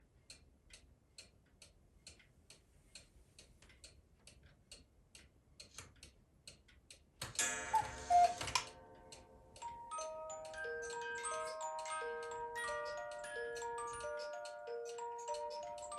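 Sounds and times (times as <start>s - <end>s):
cuckoo clock ticking: 0.2s - 15.9s
clock mechanism whirring clatter: 7.2s - 15.9s
music box notes: 7.4s - 15.9s.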